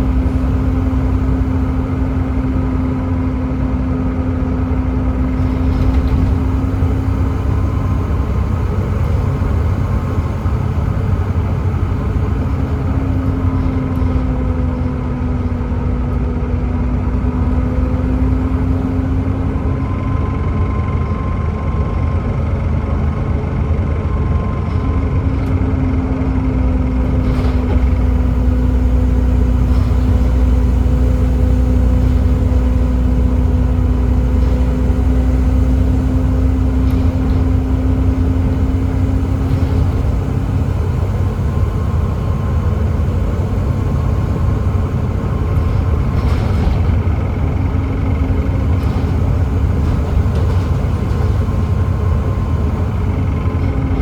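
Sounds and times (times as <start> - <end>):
bus engine rumbling: 0.0 - 54.0
steady whining tone: 24.0 - 54.0.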